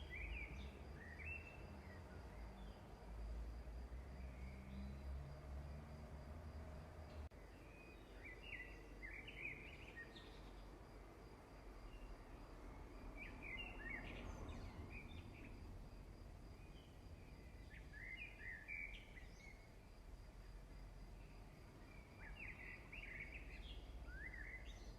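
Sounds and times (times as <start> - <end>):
faint bird song: 0.0 - 24.9.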